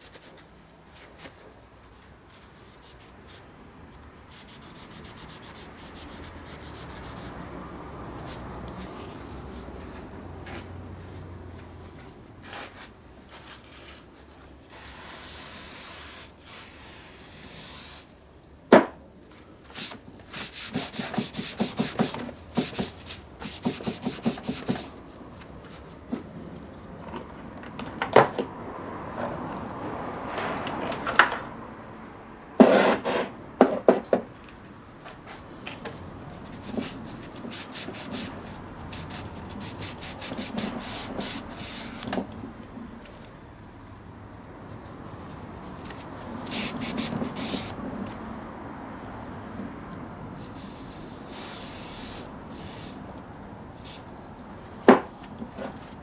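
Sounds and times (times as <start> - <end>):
hiss: 14.7 - 18.1, 50.6 - 53.1, 53.8 - 54.1.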